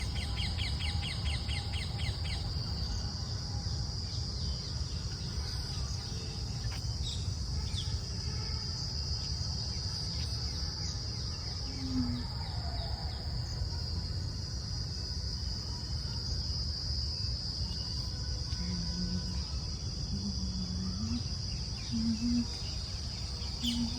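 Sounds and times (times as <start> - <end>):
insect chorus: 0.0 - 23.9
bird chirps: 20.1 - 23.9.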